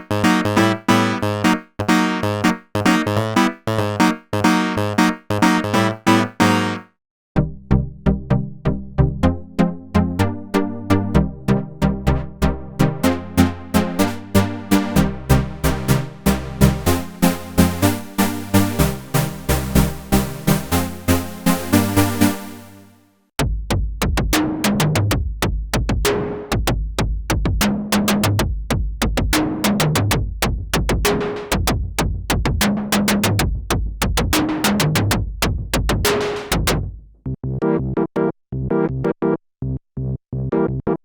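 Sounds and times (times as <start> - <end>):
synthesized kick drums: 0.0 - 6.8, 23.4 - 37.4
synth sequenced pattern: 0.0 - 23.0.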